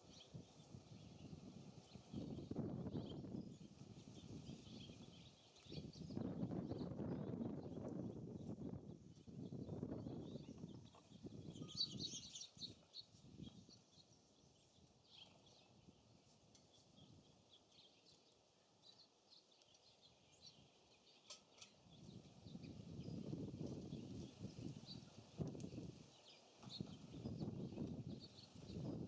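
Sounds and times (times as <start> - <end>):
wind on microphone: 0.0 - 13.8, 21.9 - 29.0
songbirds chirping: 0.0 - 29.0.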